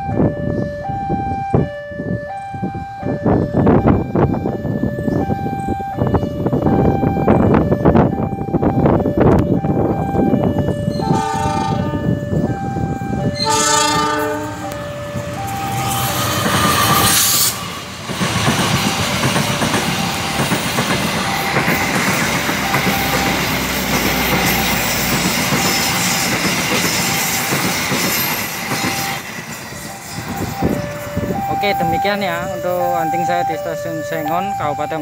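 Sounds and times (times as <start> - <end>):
train rushing past: 6.4 - 35.0
locomotive horn: 10.6 - 17.6
wheels clattering over rail joints: 14.7 - 31.4
level-crossing bell chiming: 21.2 - 35.0.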